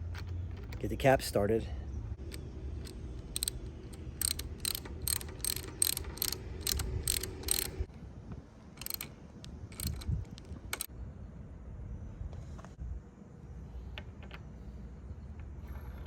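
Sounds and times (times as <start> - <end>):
hand ratchet clicking: 2.2 - 7.9, 8.8 - 9.1, 9.7 - 10.9.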